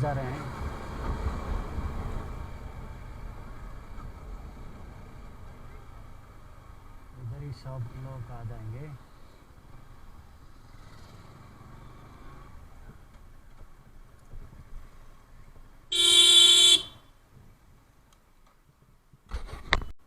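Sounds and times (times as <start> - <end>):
faint street traffic: 0.0 - 20.0
vehicle horn honking: 15.9 - 17.0.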